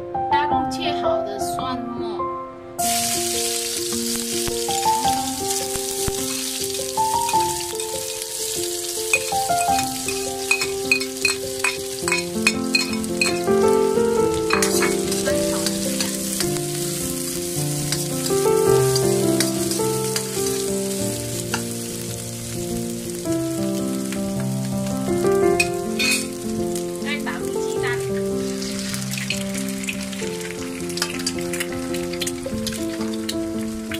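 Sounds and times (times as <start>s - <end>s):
simple melody of held notes: 0.0s - 28.4s
onion sizzling in hot oil: 2.8s - 33.9s
metal spatula scraping wok: 9.1s - 13.6s, 14.4s - 16.6s, 25.6s - 26.4s.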